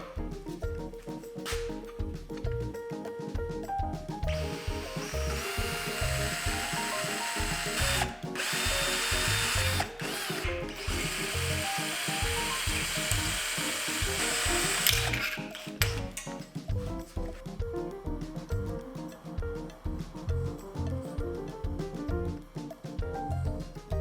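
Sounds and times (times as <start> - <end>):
background music: 0.0 - 24.0
cordless drill running: 4.3 - 16.2.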